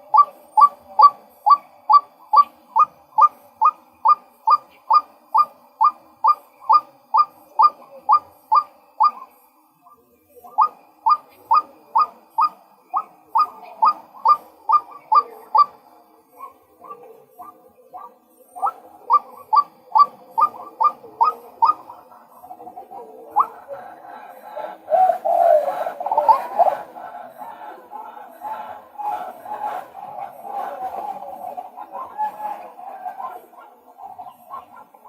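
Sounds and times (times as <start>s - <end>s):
waterhen calling: 0.0s - 9.2s.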